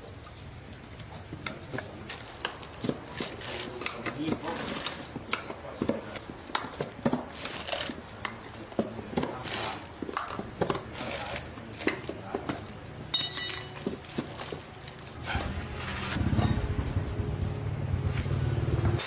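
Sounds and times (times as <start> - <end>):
metal hand tools clinking: 13.1 - 14.6
low motor hum: 14.7 - 19.0.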